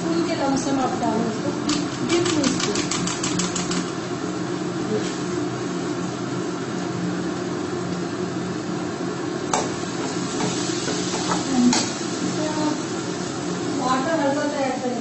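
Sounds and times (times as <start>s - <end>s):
masala frying in oil: 0.0s - 15.0s.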